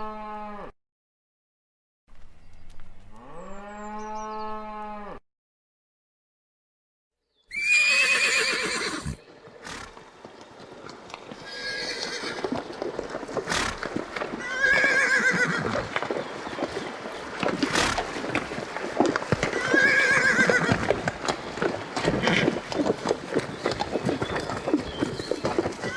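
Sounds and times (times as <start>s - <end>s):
horses whinnying: 7.5s - 10.2s, 11.4s - 25.9s.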